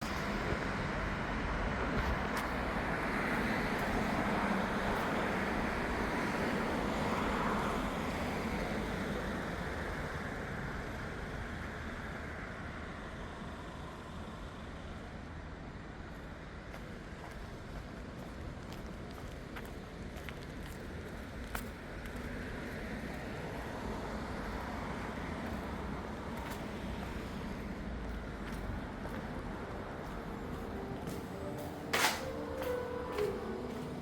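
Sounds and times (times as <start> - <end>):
road noise: 0.0 - 34.0
passing vehicle engine rumble: 21.8 - 34.0.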